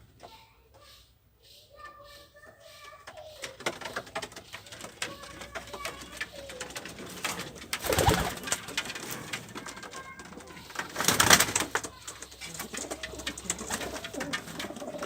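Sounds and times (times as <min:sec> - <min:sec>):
sharp taps and scratches: 0:02.8 - 0:15.0
pigeons cooing: 0:03.2 - 0:15.0
rustling burst: 0:07.2 - 0:09.4.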